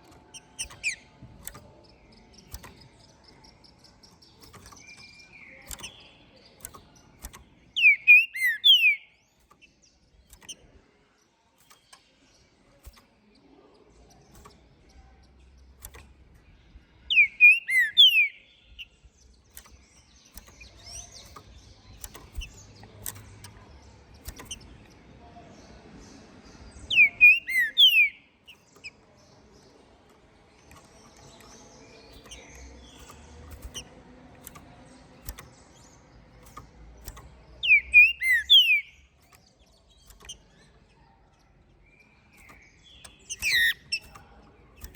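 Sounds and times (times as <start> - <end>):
bird singing whistled phrases: 7.8 - 9.2, 17.1 - 18.4, 26.9 - 28.3, 37.6 - 39.0
faint ticks: 18.8 - 25.0.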